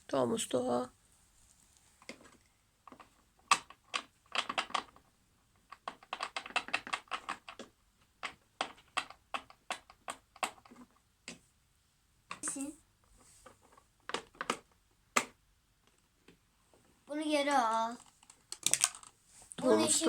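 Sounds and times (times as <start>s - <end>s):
hand tools clicking and tapping: 2.0s - 11.4s.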